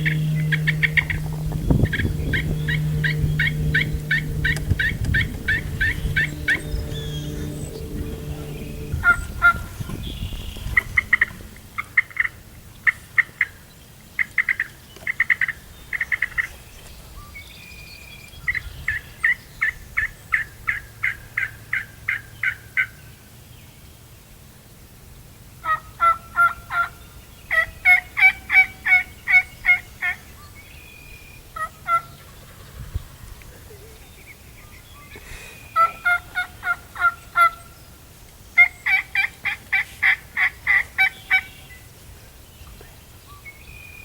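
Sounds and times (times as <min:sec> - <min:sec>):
turkey yelping: 0:35.8 - 0:37.6.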